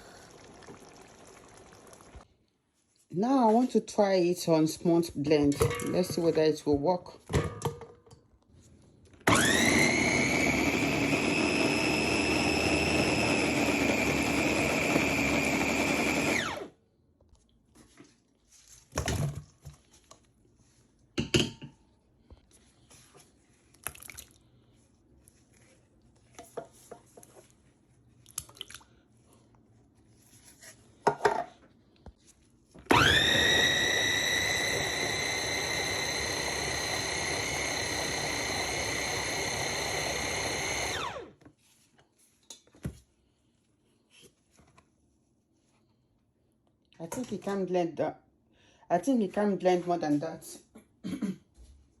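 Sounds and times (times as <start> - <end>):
electric chopper motor whine: 9.3 - 16.7, 32.9 - 41.2.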